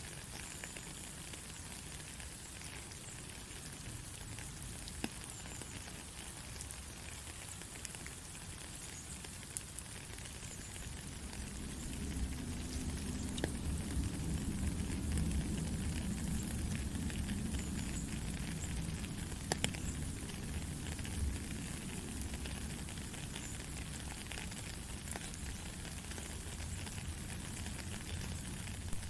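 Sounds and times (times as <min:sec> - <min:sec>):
raindrops ticking: 0:00.1 - 0:29.0
heavy rain hissing: 0:08.0 - 0:29.0
low steady rumble: 0:10.2 - 0:29.0.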